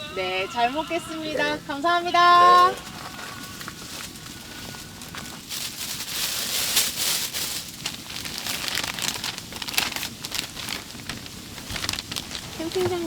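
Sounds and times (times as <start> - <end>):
wrapper crinkling: 2.6 - 13.0.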